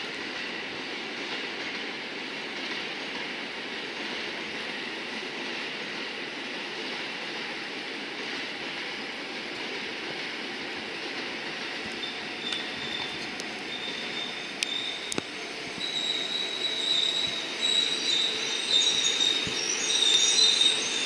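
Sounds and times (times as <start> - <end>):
train rumble and hiss: 0.0 - 21.0
high brake squeal: 11.9 - 21.0.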